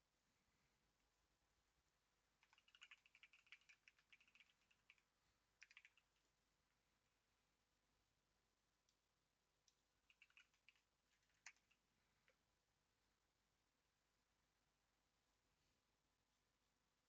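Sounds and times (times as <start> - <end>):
typing on computer keyboard: 2.4 - 5.0, 5.6 - 6.1, 10.1 - 11.8.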